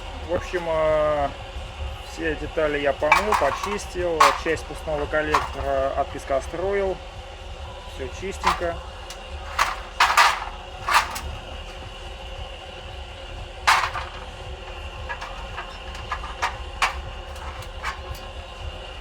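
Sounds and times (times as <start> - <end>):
steady low hum: 0.0 - 19.0
knocks and clicks of engine parts: 3.0 - 6.1, 8.4 - 12.0, 13.7 - 18.5.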